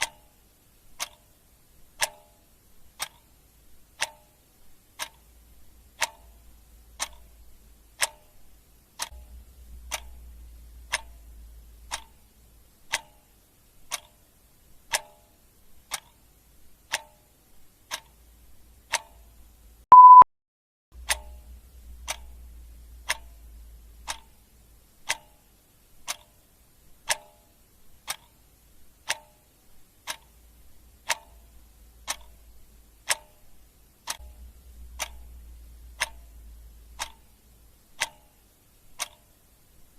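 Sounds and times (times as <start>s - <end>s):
clock ticking: 0.0s - 20.2s, 21.0s - 39.9s
short high beep: 19.9s - 20.3s.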